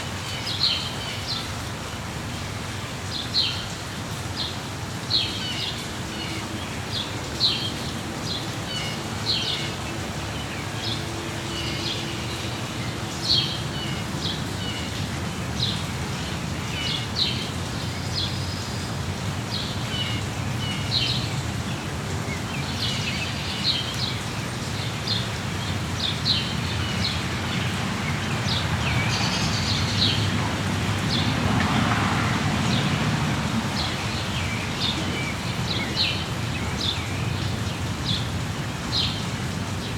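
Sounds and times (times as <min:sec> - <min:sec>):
rain hiss: 0:00.0 - 0:39.9
small birds chirping: 0:32.6 - 0:39.9.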